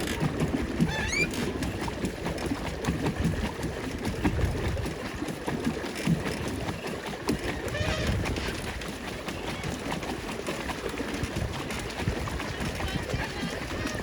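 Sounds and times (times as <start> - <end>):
paddle wheel churning and clattering: 0.0 - 14.0
short rising squeak: 0.9 - 1.5.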